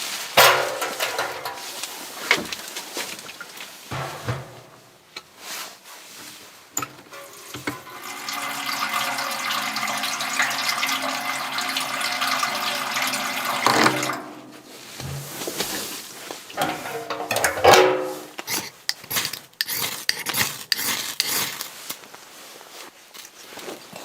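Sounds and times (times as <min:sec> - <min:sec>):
water pouring into container: 0:07.2 - 0:14.3.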